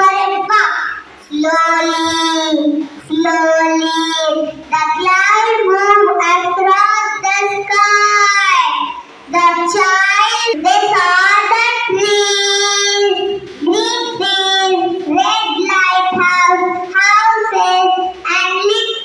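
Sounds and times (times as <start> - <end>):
child singing unaccompanied: 0.0 - 19.0.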